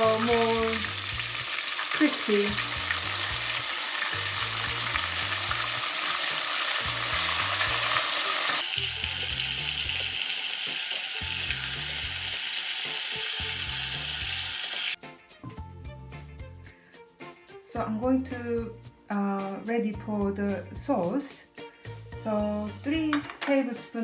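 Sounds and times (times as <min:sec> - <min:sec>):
chicken deep-frying in oil: 0:00.0 - 0:15.0
background music with bass line: 0:02.5 - 0:05.9, 0:06.8 - 0:08.0, 0:13.4 - 0:19.1, 0:20.0 - 0:23.2.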